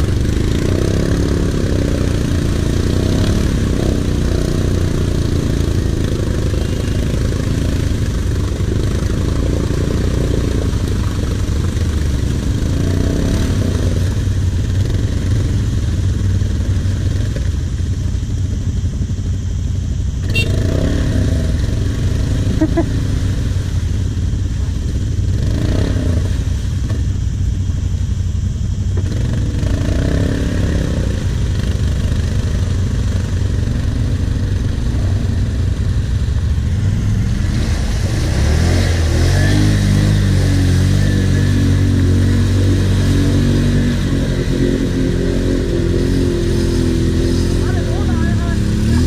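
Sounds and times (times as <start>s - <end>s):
quad engine revving: 0.0s - 15.8s, 20.2s - 23.8s, 25.3s - 26.9s, 29.0s - 49.0s
atv engines droning: 0.0s - 49.0s
water splashing: 32.6s - 49.0s.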